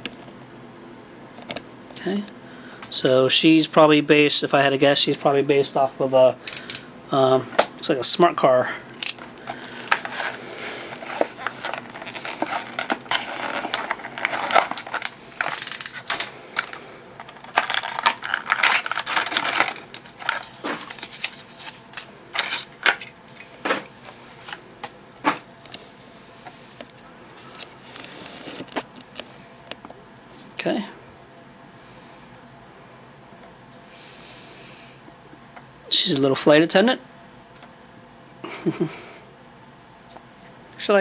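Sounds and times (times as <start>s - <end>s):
plastic packaging crinkling: 8.9s - 23.5s.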